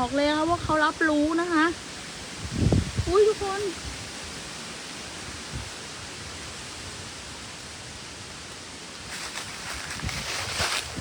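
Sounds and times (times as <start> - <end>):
strong wind blowing: 0.0 - 8.0, 9.0 - 11.0
rustling and crackling: 8.5 - 11.0.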